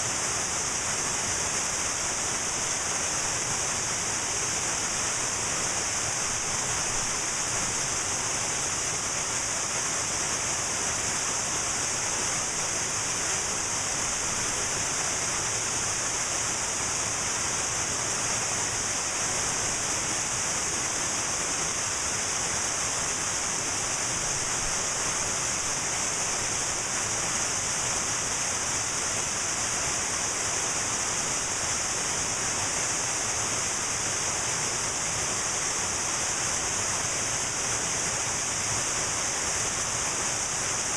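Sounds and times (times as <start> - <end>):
waterfall rushing: 0.1 - 40.9.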